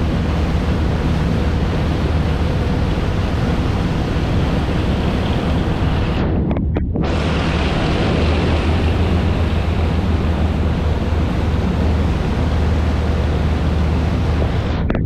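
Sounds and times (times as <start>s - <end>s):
engine drone: 0.0s - 15.0s
wind and water rushing: 0.0s - 15.0s.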